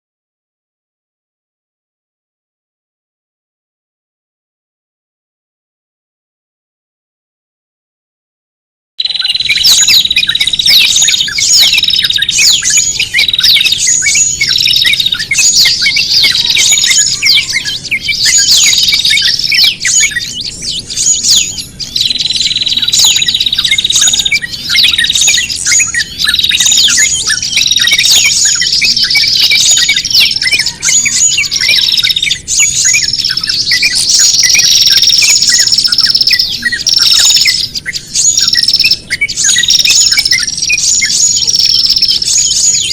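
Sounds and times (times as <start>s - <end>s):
small birds chirping in distress: 9.0s - 42.9s.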